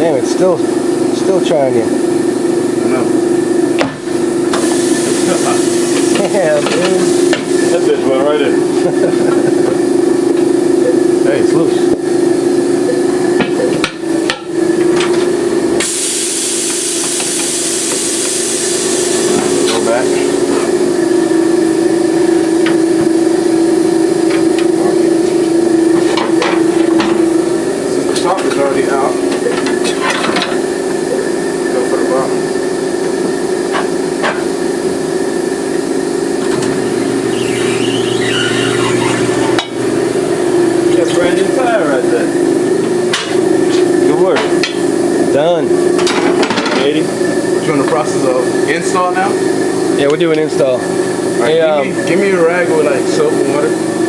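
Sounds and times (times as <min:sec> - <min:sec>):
tire machine motor hum: 0:00.0 - 0:54.0
compressed air hissing: 0:04.4 - 0:07.9, 0:15.8 - 0:20.9
deeper hum: 0:35.5 - 0:41.2
wavering squeak: 0:37.2 - 0:39.6.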